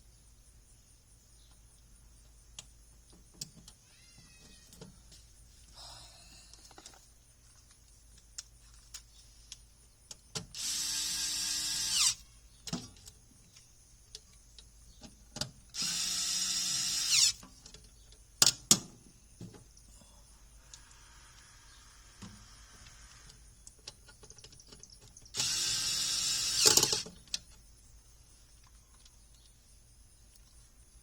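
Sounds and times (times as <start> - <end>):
power drill running: 10.6 - 12.2, 15.8 - 17.4, 25.4 - 27.0.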